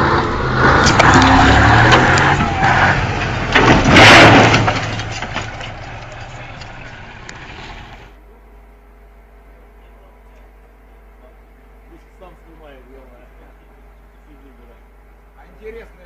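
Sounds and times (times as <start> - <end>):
loud road noise: 0.0 - 8.2
vehicle engine running: 0.0 - 16.0.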